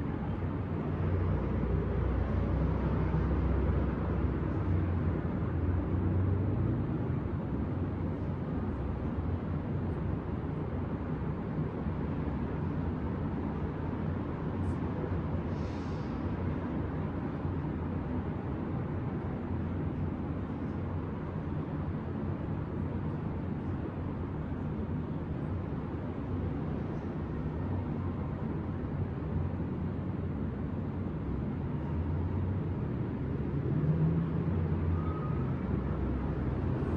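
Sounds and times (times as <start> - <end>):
distant city traffic rumble: 0.0 - 36.9
brief hiss: 15.5 - 16.2.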